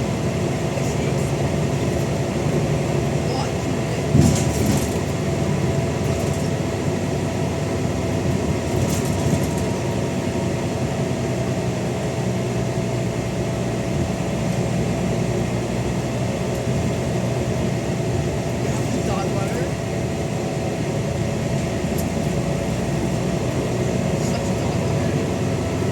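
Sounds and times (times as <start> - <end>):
bus engine thrash: 0.6 - 6.8, 7.9 - 10.1.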